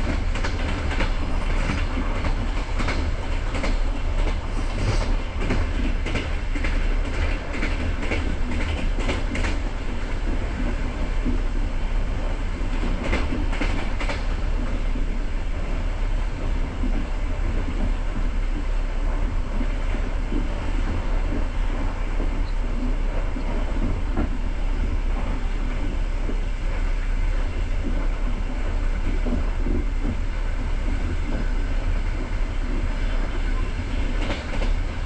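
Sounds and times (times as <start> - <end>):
wheels clicking over rail joints: 0.0 - 11.4, 12.6 - 15.1
train wheels rumbling on rail: 0.0 - 35.0.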